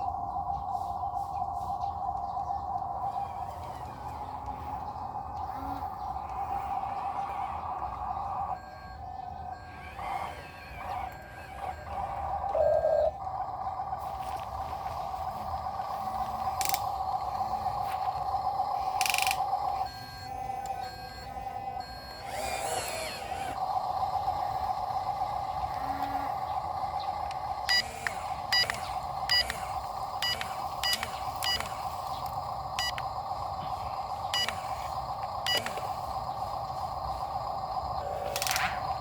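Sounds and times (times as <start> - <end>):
dump truck engine hum: 2.7 - 39.0
short beeps: 19.8 - 22.3, 28.5 - 29.5, 30.2 - 31.7, 32.8 - 33.0, 35.5 - 35.8.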